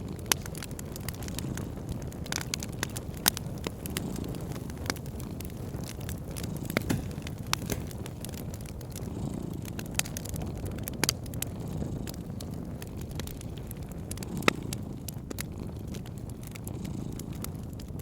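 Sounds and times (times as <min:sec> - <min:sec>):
cat purring: 0:00.0 - 0:18.0
fireplace crackling: 0:00.0 - 0:18.0.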